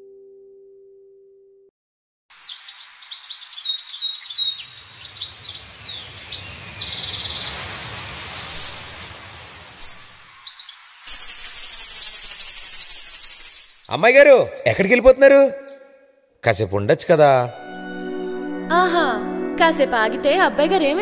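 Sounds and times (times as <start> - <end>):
small birds chirping: 2.3 - 9.0, 9.8 - 16.0
steady hiss: 5.8 - 12.3.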